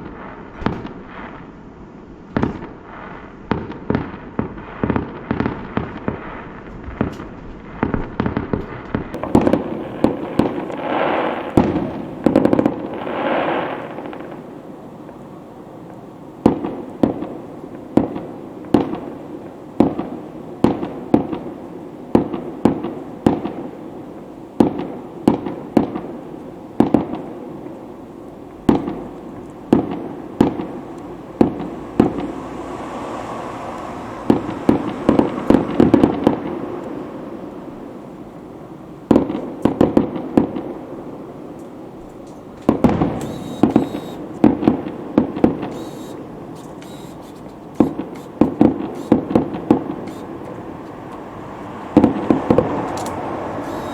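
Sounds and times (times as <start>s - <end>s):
fireworks crackling bursts: 0.0s - 53.9s
fireworks sharp bangs: 0.0s - 53.9s.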